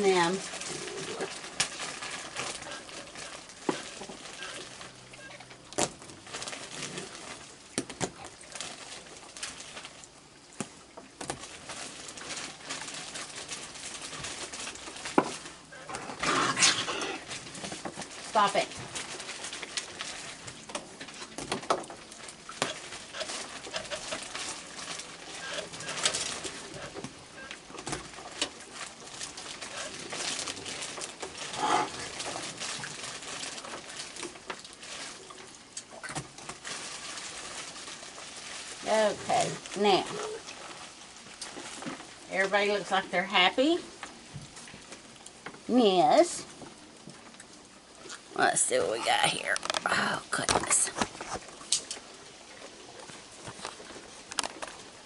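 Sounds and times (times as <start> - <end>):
raccoons clicking and scuffling: 0.0 - 55.0
raccoons hissing squabble: 15.8 - 17.3.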